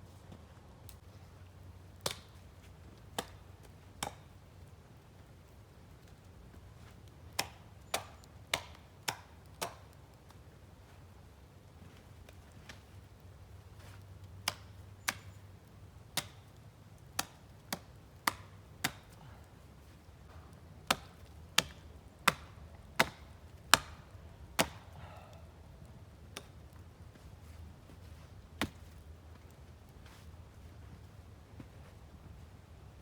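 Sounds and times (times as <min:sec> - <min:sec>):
axe chopping wood: 0:02.0 - 0:02.4, 0:07.4 - 0:09.8, 0:17.2 - 0:19.2, 0:20.8 - 0:25.0, 0:28.6 - 0:28.9.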